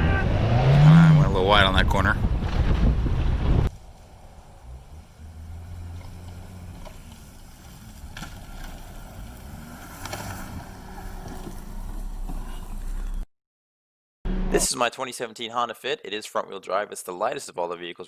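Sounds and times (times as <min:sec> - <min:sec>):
wind noise on microphone: 0:00.0 - 0:04.8
car engine running: 0:00.0 - 0:12.6.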